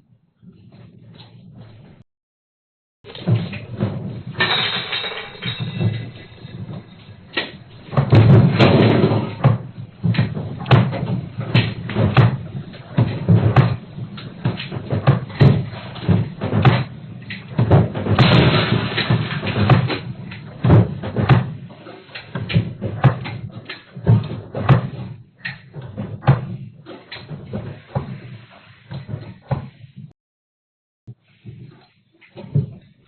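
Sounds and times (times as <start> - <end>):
doors banging and rattling: 3.1 - 29.8.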